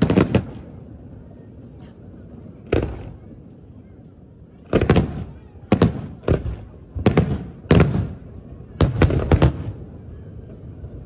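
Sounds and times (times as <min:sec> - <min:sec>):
fireworks bursting with bangs: 0:00.0 - 0:01.1, 0:02.6 - 0:03.5, 0:04.6 - 0:10.0.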